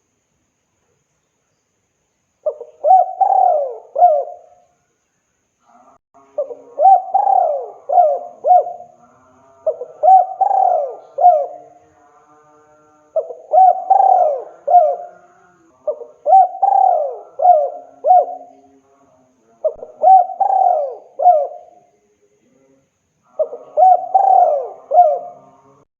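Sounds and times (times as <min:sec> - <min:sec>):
dove cooing: 0:02.4 - 0:04.6, 0:06.4 - 0:09.0, 0:09.6 - 0:11.8, 0:13.2 - 0:18.6, 0:19.6 - 0:21.8, 0:23.3 - 0:25.6.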